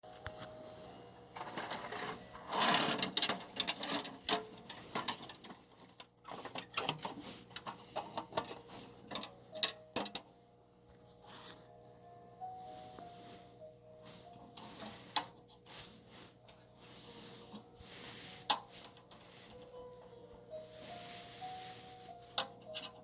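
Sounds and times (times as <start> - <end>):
metal parts clinking and rattling: 1.4 - 5.6.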